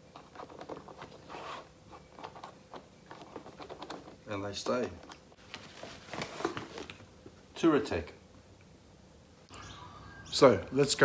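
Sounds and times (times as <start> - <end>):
faint thin high tone: 9.5 - 10.6.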